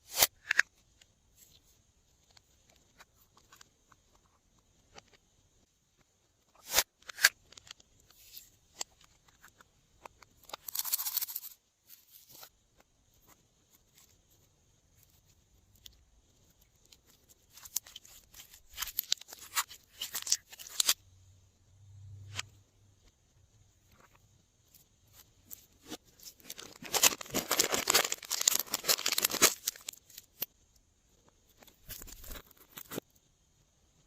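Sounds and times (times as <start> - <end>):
plastic bag rustling: 25.8 - 30.2.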